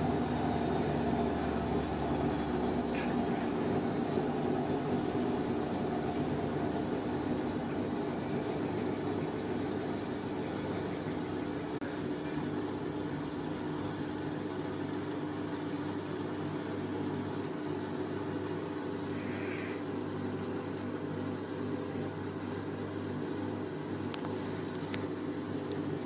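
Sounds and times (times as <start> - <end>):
washing machine motor hum: 0.0 - 26.0.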